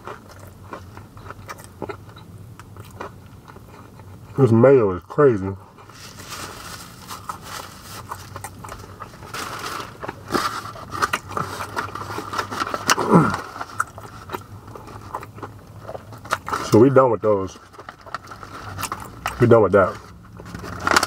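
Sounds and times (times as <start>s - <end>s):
person chewing with wet smacks: 0.0s - 4.4s, 8.0s - 9.2s.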